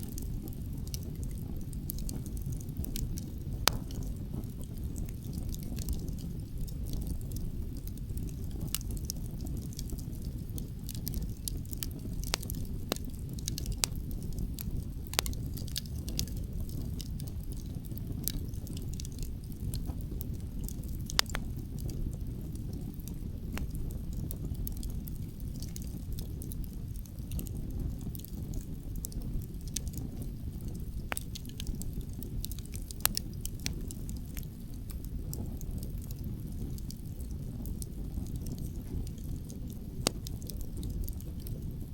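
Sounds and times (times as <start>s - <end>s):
campfire crackling and popping: 0.0s - 41.9s.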